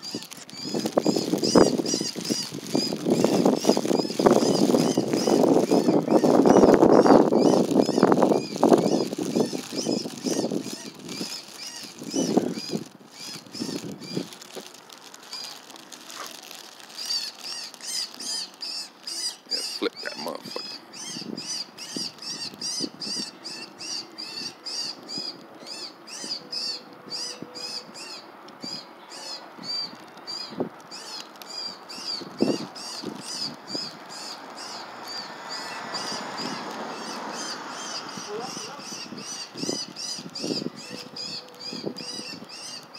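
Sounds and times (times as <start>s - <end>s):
bird chirping: 0.0s - 14.4s, 16.4s - 42.9s
low rustles: 0.0s - 21.0s.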